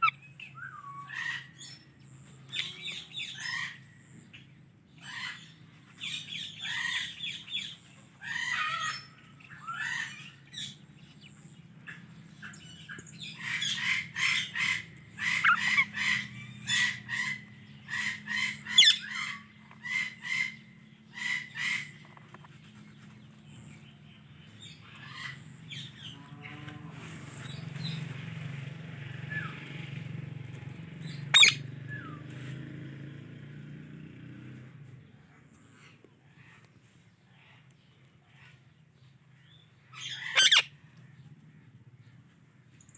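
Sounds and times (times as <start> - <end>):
parakeet chirps and squawks: 0.0 - 1.8, 2.5 - 3.9, 5.0 - 10.8, 11.9 - 22.5, 24.6 - 26.2, 31.0 - 31.7, 39.9 - 40.8.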